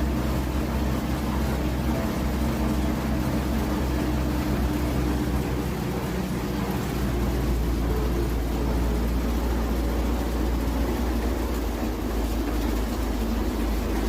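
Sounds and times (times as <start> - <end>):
locomotive engine rumbling: 0.0 - 14.0.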